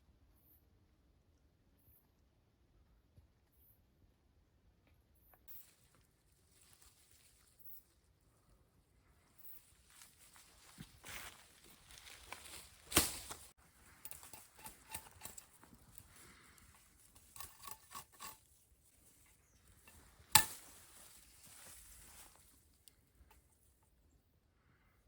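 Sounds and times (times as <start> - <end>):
objects being handled: 9.9 - 22.6
brief rustle: 10.0 - 18.4.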